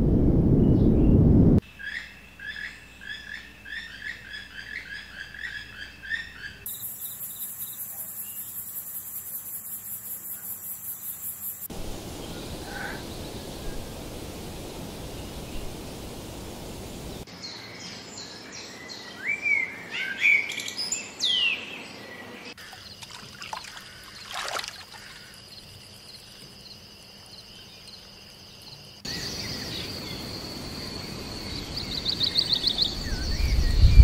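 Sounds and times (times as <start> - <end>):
background hiss: 6.7 - 17.6
birdsong: 29.1 - 34.0.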